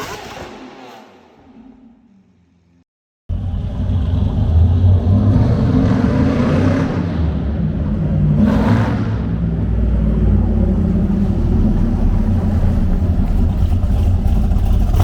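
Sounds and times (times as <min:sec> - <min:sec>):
truck engine revving: 0:03.3 - 0:15.0.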